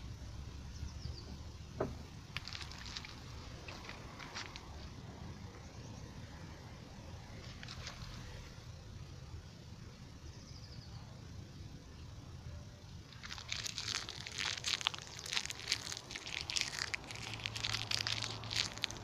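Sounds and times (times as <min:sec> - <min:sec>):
low steady background noise: 0:00.0 - 0:19.0
grass and paper crackling burning: 0:02.3 - 0:05.0, 0:07.4 - 0:08.5, 0:13.0 - 0:19.0.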